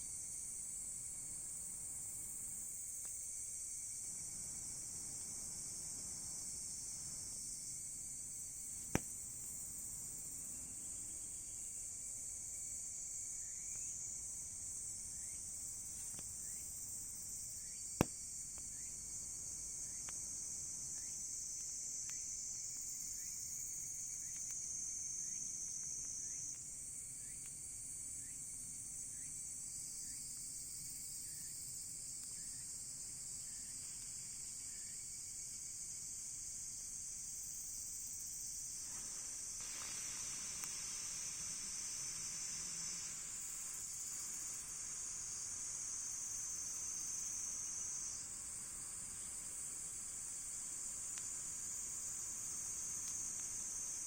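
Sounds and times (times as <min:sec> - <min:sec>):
crickets chirring: 0:00.0 - 0:54.0
campfire wood popping: 0:08.8 - 0:09.6, 0:15.8 - 0:24.7, 0:38.8 - 0:45.0, 0:50.4 - 0:54.0.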